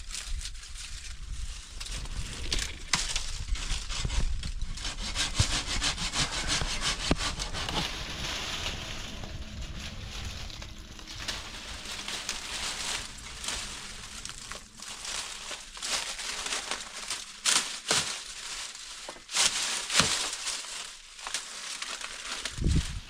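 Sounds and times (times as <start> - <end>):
hand saw cutting wood: 3.0 - 8.9, 12.3 - 20.4.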